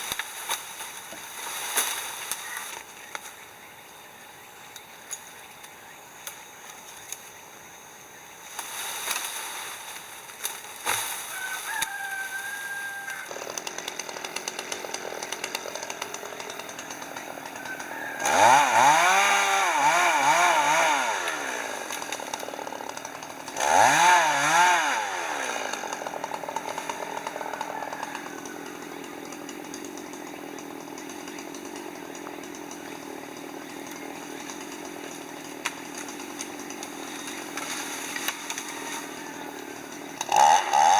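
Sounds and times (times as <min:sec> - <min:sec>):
chainsaw revving: 0:08.4 - 0:40.9.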